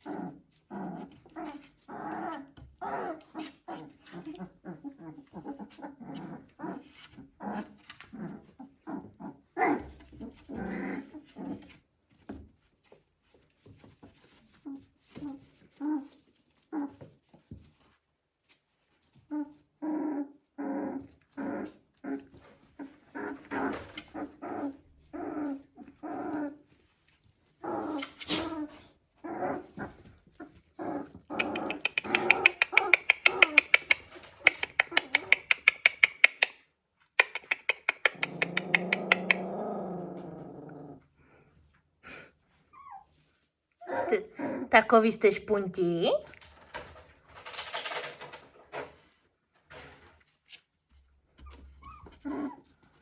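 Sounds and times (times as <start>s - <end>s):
puppies making pitched calls: 27.7s - 36.6s
fast sharp clicks: 31.4s - 36.6s, 37.2s - 39.4s.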